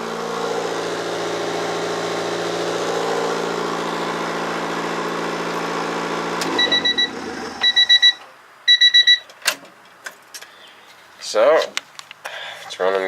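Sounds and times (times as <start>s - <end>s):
car engine idling: 0.0s - 7.9s
electronic warning chime beeps: 6.6s - 9.3s.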